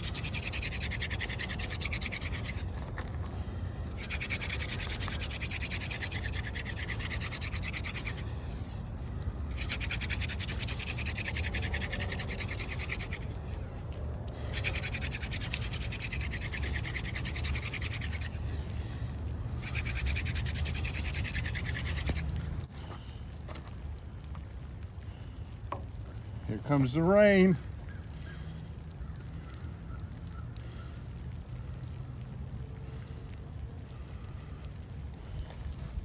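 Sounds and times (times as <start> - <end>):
wooden spindle rubbing on hearth board: 0.0 - 23.0.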